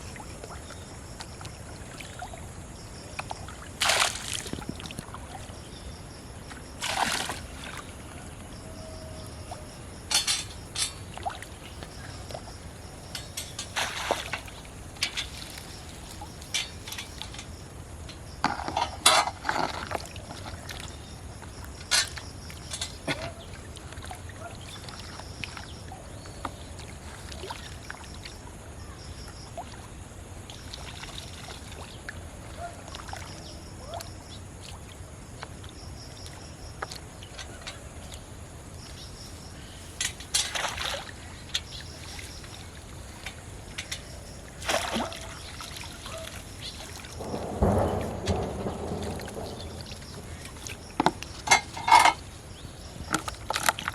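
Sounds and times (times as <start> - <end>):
pond water splashing: 0.0 - 8.6, 9.2 - 26.0, 26.6 - 28.5, 29.2 - 53.9
low background hiss: 0.0 - 19.3.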